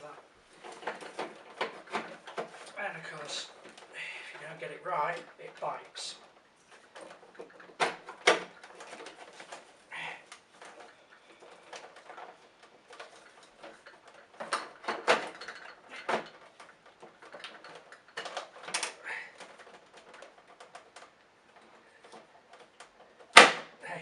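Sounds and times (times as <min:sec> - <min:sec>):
plastic parts clicking and knocking: 0:00.0 - 0:24.0.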